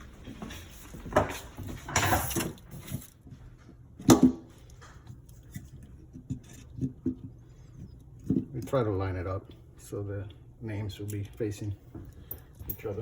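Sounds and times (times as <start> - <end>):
parts rustling and clattering: 0.1 - 8.8.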